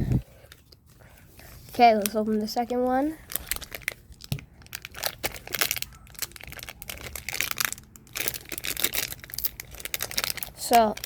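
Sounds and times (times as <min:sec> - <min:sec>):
foil wrapper tearing and crinkling: 0:03.2 - 0:11.0.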